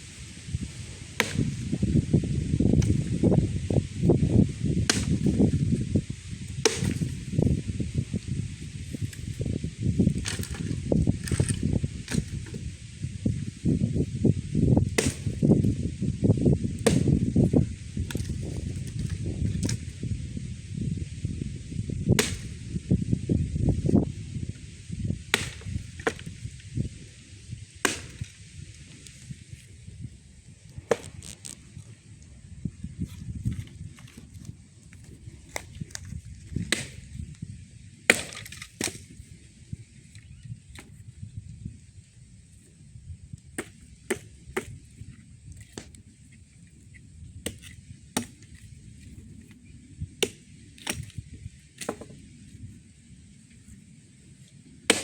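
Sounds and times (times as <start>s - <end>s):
wood chopping cracks: 0.6s - 5.8s, 6.5s - 12.8s, 14.8s - 15.8s, 16.7s - 19.9s, 22.1s - 22.6s, 25.3s - 26.4s, 27.8s - 28.4s, 30.9s - 31.6s, 33.1s - 37.4s, 38.1s - 39.2s, 40.7s - 41.0s, 43.6s - 44.9s, 45.5s - 46.0s, 47.4s - 49.6s, 50.2s - 51.2s, 51.8s - 52.2s.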